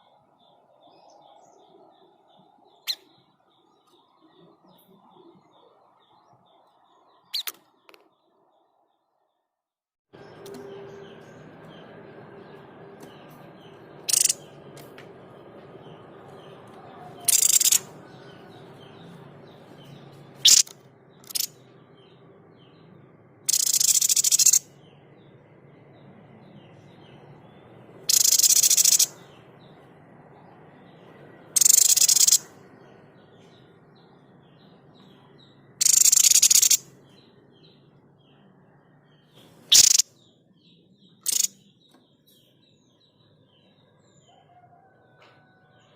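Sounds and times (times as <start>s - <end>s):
faint chirping of birds or insects: 0.0s - 9.6s, 10.2s - 14.7s, 15.8s - 45.9s
bird harsh hissing calls: 20.4s - 21.5s, 31.6s - 32.4s, 35.8s - 36.8s, 39.7s - 40.0s, 41.3s - 41.5s.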